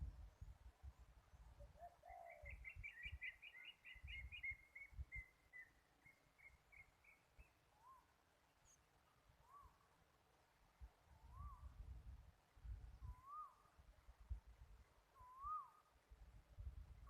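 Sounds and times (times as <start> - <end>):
wind rumble on microphone: 0.0 - 3.2, 3.9 - 5.3, 11.1 - 13.4, 14.1 - 15.3, 16.1 - 17.0
bird singing: 1.4 - 9.8, 12.9 - 13.7, 15.1 - 15.9.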